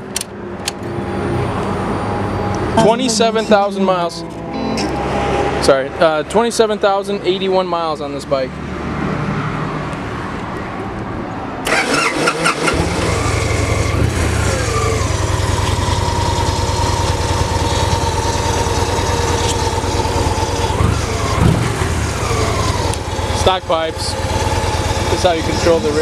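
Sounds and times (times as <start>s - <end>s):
starter motor cranking: 11.7s - 13.8s
motorcycle engine idling: 13.2s - 26.0s.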